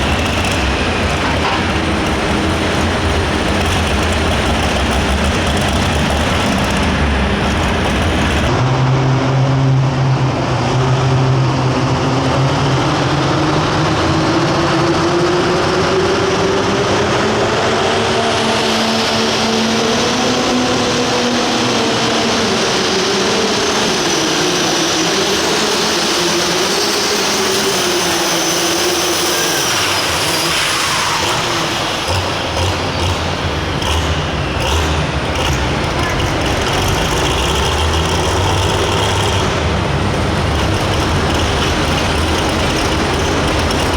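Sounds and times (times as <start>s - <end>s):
diesel engine running flat out: 0.0s - 43.9s
high turbo whistle: 23.4s - 32.2s.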